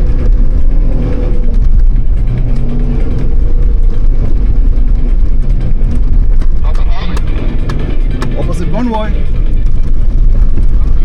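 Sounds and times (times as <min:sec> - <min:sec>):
vehicle engine under load: 0:00.0 - 0:11.0.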